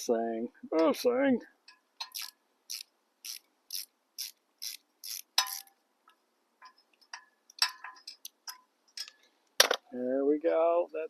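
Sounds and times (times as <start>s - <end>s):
ratchet wrench clicking: 2.0s - 5.7s.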